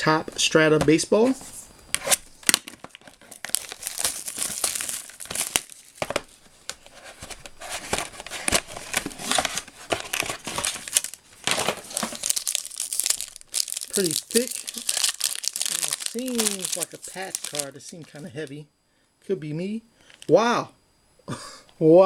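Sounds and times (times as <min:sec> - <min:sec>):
plastic wrapping crinkling and tearing: 0:02.4 - 0:18.5.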